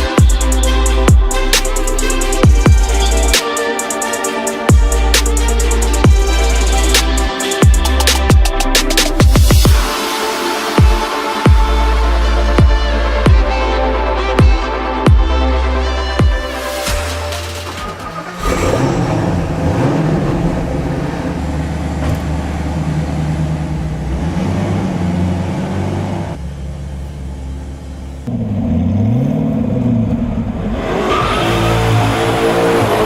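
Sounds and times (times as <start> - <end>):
sports car engine revving: 16.5 - 33.0.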